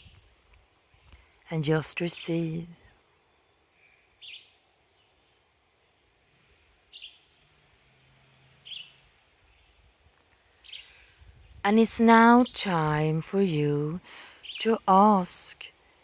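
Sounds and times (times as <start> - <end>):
bird chirping: 4.2 - 5.4, 8.4 - 9.8.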